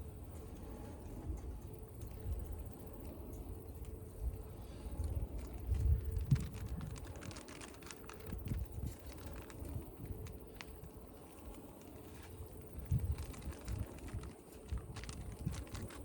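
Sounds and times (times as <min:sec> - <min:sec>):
wood fire crackling: 0:05.0 - 0:16.0.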